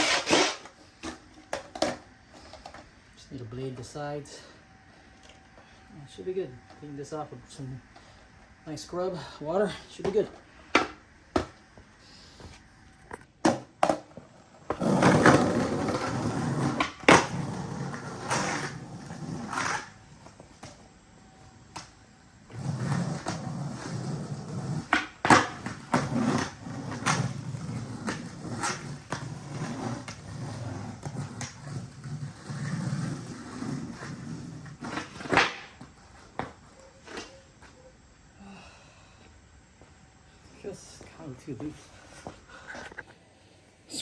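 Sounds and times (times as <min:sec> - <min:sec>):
skateboard clacking on ground: 0:00.0 - 0:02.8, 0:10.0 - 0:11.6, 0:13.2 - 0:20.8, 0:22.6 - 0:37.6
skateboard rolling over pavement: 0:00.0 - 0:02.9, 0:13.3 - 0:37.3.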